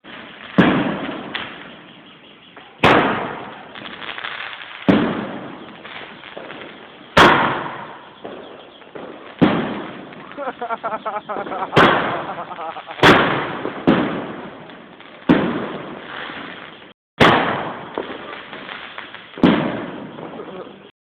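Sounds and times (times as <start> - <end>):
faint fireworks crackling: 0.0 - 20.9
fireworks bangs with echo: 0.0 - 20.9.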